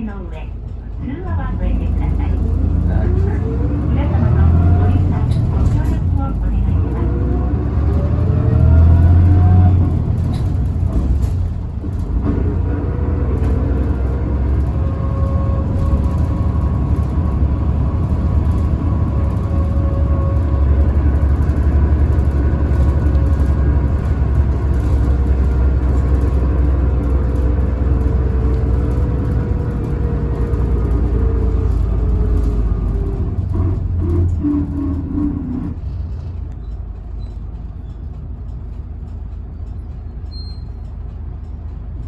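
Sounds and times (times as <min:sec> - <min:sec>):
bus drive rumbling: 0:00.0 - 0:42.0.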